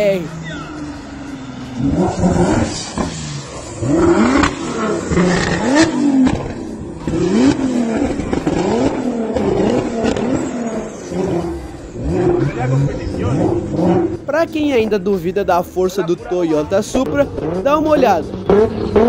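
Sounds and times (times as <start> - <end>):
car engine revving hard: 0.4 - 14.5, 16.8 - 19.0
sharp exhaust cracks: 1.7 - 14.5.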